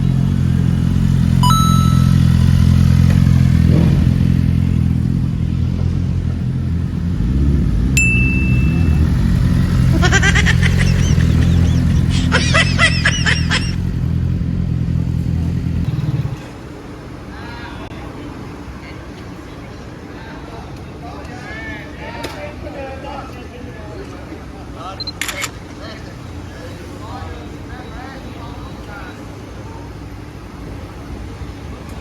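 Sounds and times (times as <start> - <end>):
high-pitched wavering sounds: 1.4 - 2.6
short beeps: 1.4 - 2.7, 8.0 - 9.4
motorcycle engine idling: 2.2 - 16.0.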